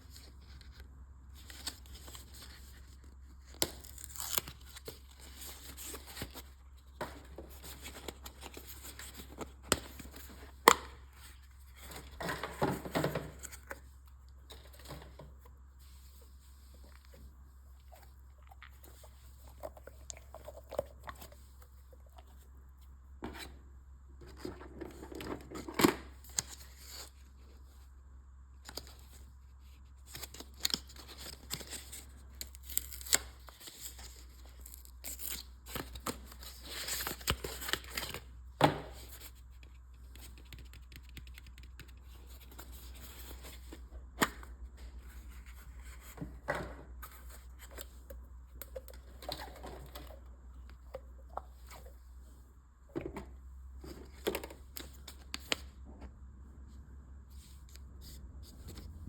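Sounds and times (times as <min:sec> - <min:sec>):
packaging tearing and rustling: 0:01.5 - 0:06.5.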